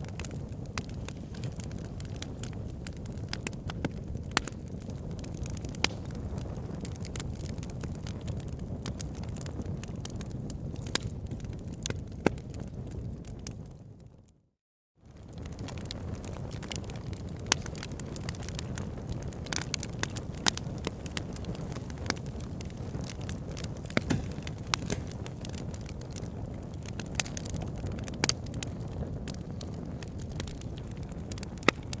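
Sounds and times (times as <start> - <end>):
crackles and pops of burning logs: 0.0 - 14.0, 15.1 - 32.0
low rumble of flames: 0.0 - 14.3, 15.0 - 32.0.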